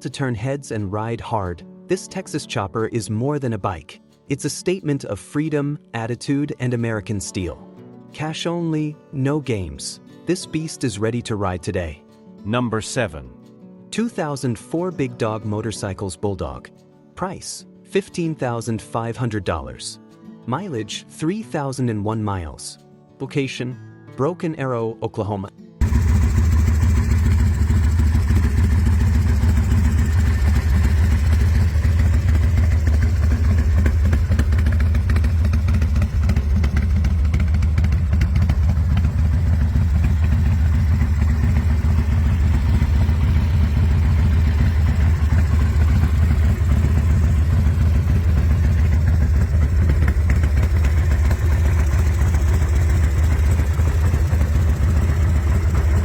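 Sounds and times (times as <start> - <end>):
motorcycle engine running: 25.8 - 56.0.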